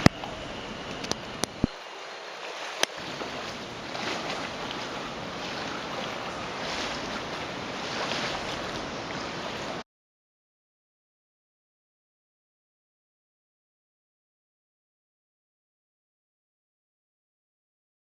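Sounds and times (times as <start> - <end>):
wind on microphone: 0.0 - 1.8
river rushing: 0.0 - 9.8.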